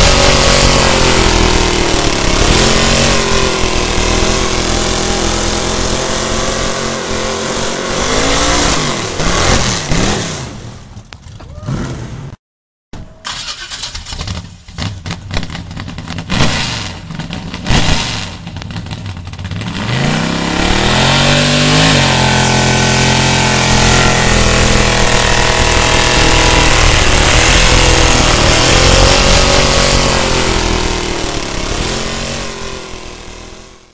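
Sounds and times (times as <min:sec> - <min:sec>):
car engine revving: 0:00.0 - 0:10.8, 0:13.3 - 0:33.9
engine sharp pops: 0:13.7 - 0:20.5.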